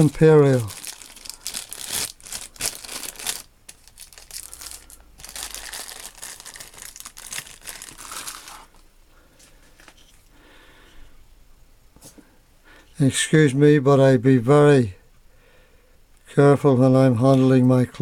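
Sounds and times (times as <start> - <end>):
crinkling rustling handling noise: 0.0 - 10.2.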